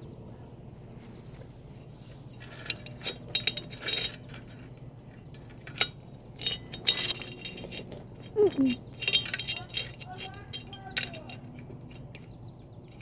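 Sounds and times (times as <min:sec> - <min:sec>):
bicycle chain clinking: 0:02.0 - 0:13.0.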